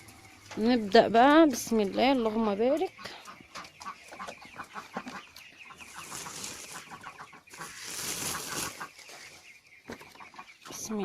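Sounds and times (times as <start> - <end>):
chickens clucking: 0.0 - 11.0
rustling hiss: 5.8 - 9.4.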